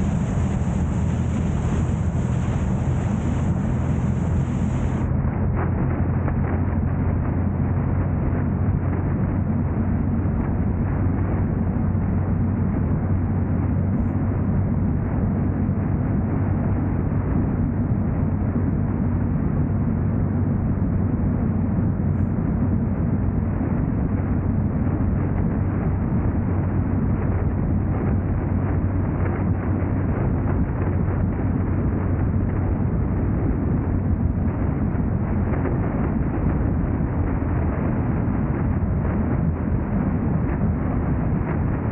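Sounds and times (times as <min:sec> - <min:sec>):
car engine and road noise: 0:00.0 - 0:41.9.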